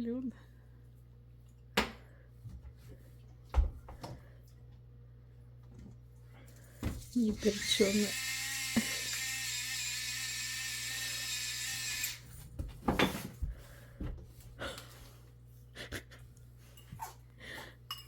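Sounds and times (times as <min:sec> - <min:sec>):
small electric motor whining: 0:07.2 - 0:12.3.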